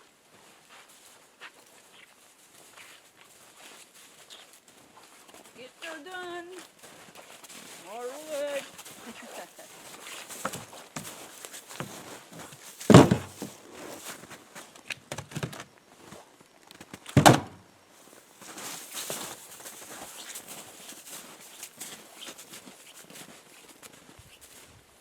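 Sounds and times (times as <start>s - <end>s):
firewood dropped with heavy thuds: 10.3s - 11.2s, 12.8s - 13.6s, 15.1s - 15.7s, 16.9s - 17.6s
wood knocking and shuffling: 10.4s - 12.1s, 12.9s - 13.6s, 17.1s - 17.6s.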